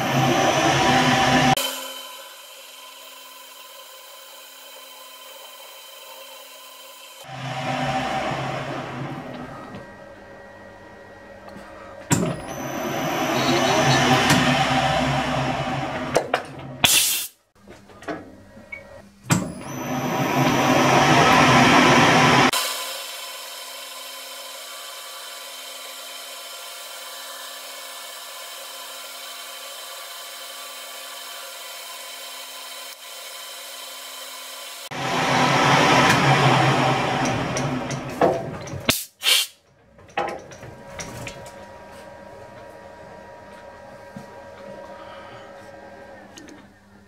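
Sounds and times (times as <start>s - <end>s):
lathe cutting metal: 0.0s - 9.8s, 12.3s - 16.8s, 19.6s - 38.7s
lathe motor hum: 0.0s - 16.8s, 19.6s - 38.7s, 40.4s - 47.0s.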